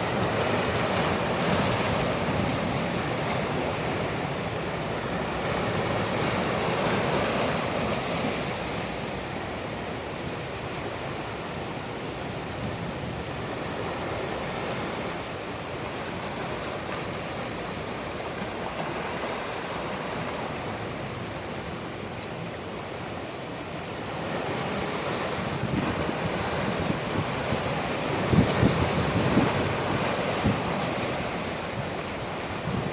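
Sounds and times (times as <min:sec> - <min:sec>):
ocean waves washing ashore: 0:00.0 - 0:32.9
wind buffeting microphone: 0:24.5 - 0:32.9.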